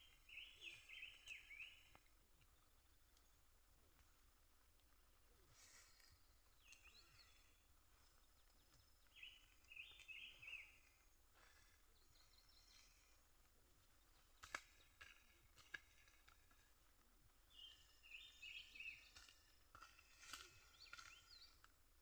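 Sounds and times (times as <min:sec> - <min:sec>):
bird chirps: 0:00.0 - 0:02.0, 0:05.8 - 0:13.2, 0:17.5 - 0:21.6.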